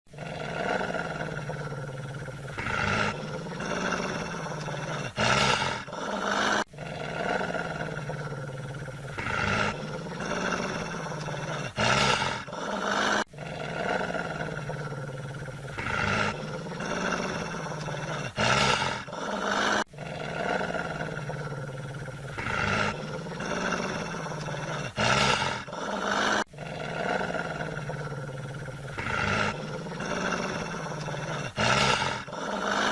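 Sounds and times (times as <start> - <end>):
animal growling and roaring: 0.1 - 32.9.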